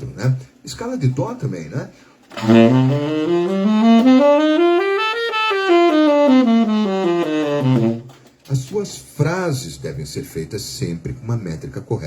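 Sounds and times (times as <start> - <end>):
saxophone playing a scale: 2.3 - 8.2.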